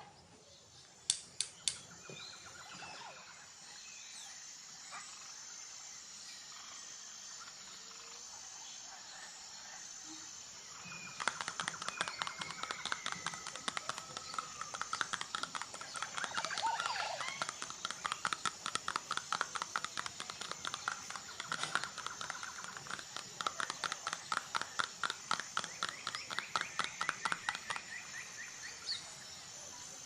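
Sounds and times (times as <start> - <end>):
steady outdoor hiss: 0.0 - 30.0
sharp clicks: 1.1 - 1.9, 11.0 - 28.2
rapid crisp tapping and scratching: 10.8 - 28.5.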